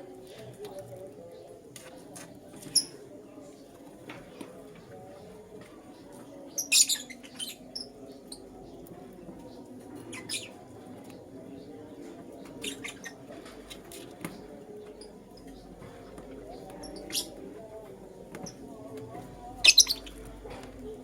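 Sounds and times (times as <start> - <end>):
low background murmur: 0.0 - 21.0
lovebirds chirping: 19.5 - 21.0.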